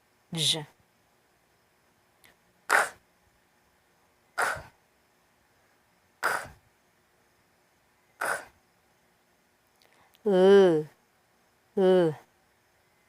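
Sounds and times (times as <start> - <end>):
woman saying k sound: 0.3 - 0.8, 10.2 - 11.0, 11.8 - 12.3.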